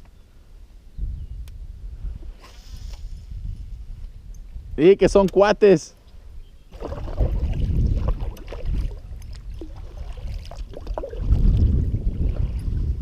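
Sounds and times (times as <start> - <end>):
low rumbling water swells: 6.7 - 13.0.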